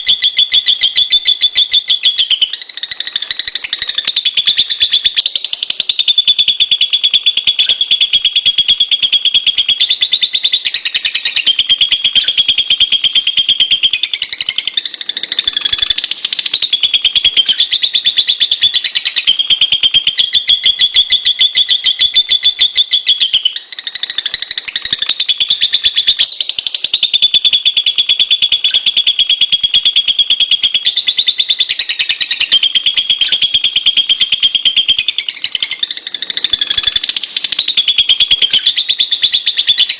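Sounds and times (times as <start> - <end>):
lovebird chattering trill: 0.0 - 39.9.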